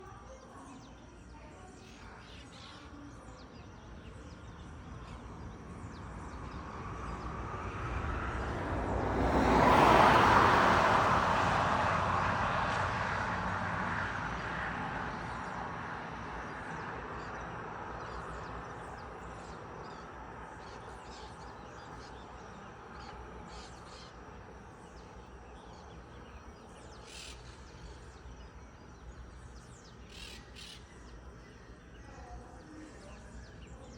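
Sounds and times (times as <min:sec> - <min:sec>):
small birds chirping: 0:00.1 - 0:07.7, 0:16.3 - 0:33.9
vehicle passing: 0:04.4 - 0:30.8.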